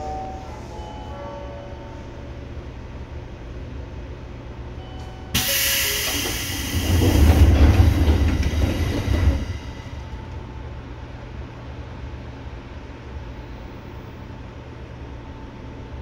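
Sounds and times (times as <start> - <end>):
electric train running: 5.3 - 10.4.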